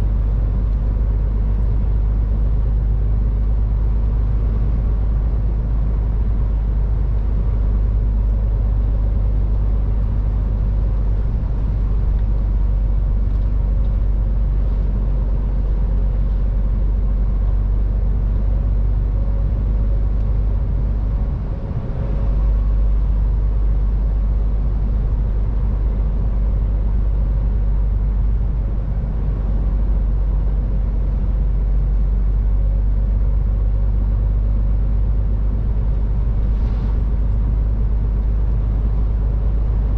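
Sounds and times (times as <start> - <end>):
truck engine and tyre rumble: 0.0 - 39.9.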